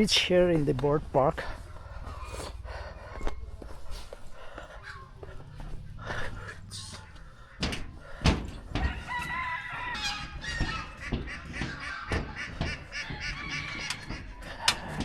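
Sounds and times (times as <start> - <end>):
footstep-like thuds: 0.6 - 15.0
rooster crowing: 8.6 - 14.7.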